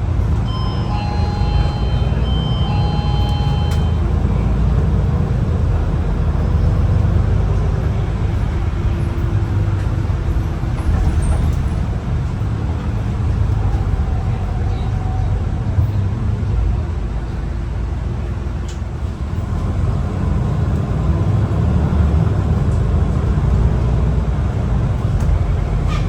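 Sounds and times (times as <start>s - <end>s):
bus engine and road rumble: 0.0s - 26.0s
short high electronic tones: 0.5s - 4.1s.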